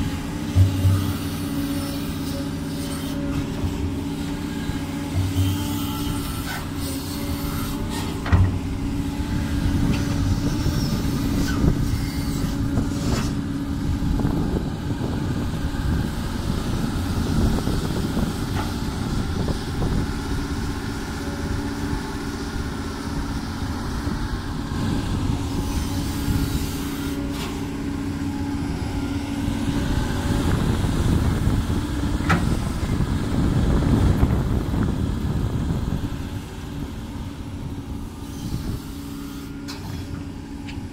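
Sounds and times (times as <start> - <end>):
excavator diesel engine running: 0.0 - 40.9
metal clanks and knocks: 8.2 - 8.6.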